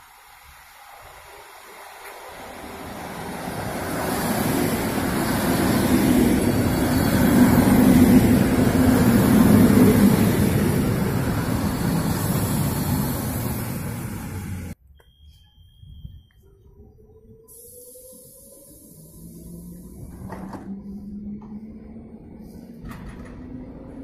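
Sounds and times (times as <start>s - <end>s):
train wheels rumbling: 0.6s - 14.8s.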